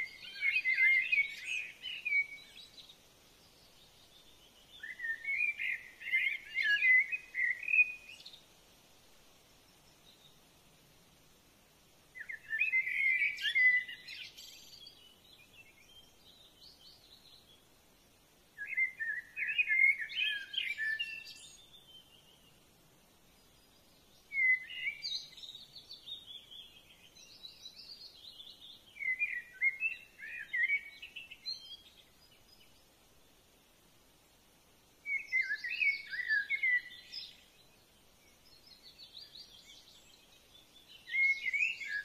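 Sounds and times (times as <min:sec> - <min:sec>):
songbird warbling: 0:00.0 - 0:03.0, 0:04.1 - 0:08.4, 0:12.2 - 0:17.4, 0:18.6 - 0:22.5, 0:24.3 - 0:32.8, 0:35.0 - 0:37.6, 0:38.4 - 0:42.0
faint background hiss: 0:00.0 - 0:42.0.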